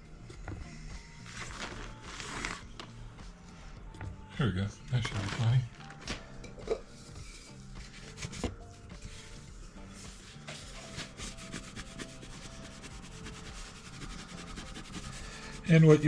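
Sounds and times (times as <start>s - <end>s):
hand pump puffing and rubbing: 10.1s - 15.7s.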